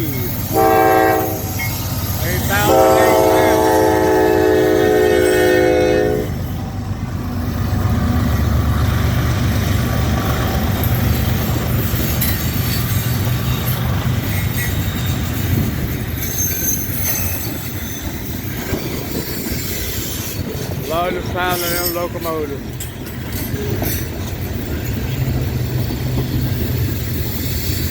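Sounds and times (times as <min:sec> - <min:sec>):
diesel locomotives rumbling: 0:00.0 - 0:27.9
wheel and rail noise: 0:00.0 - 0:27.9
locomotive horn chord: 0:00.5 - 0:01.6, 0:02.2 - 0:06.4.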